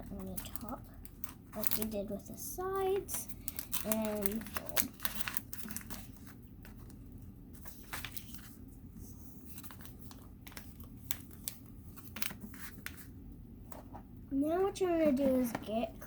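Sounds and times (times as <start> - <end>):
paper and tape crinkling: 0.0 - 13.1.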